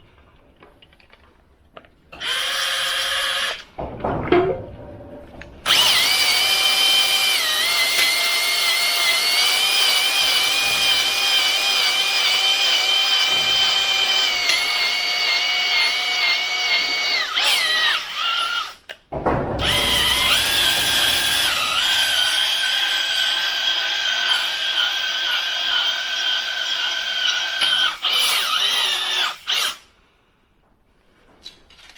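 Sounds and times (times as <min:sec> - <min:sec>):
drill spinning cylinder hone: 0:05.7 - 0:18.6.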